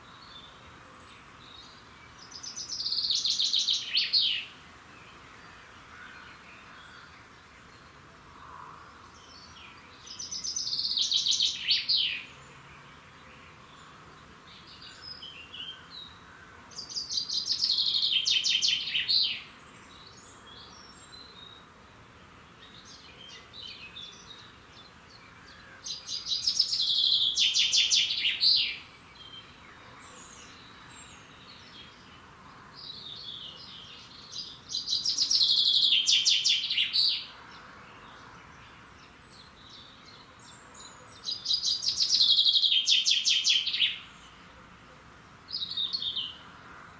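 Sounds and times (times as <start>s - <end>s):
songbird trilled song: 9.2s - 14.0s, 22.6s - 32.2s, 32.8s - 37.3s, 38.0s - 44.4s, 45.5s - 46.4s.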